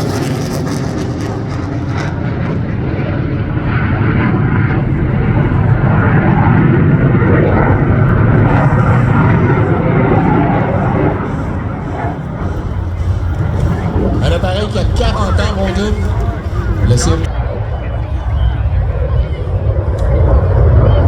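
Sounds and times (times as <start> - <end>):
fighter jet roar: 0.0 - 21.0.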